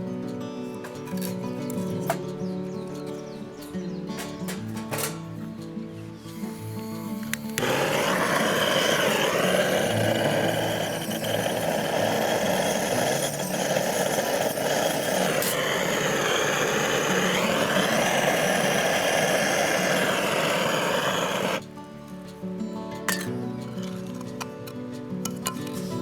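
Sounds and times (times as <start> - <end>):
small engine running: 7.5 - 21.6.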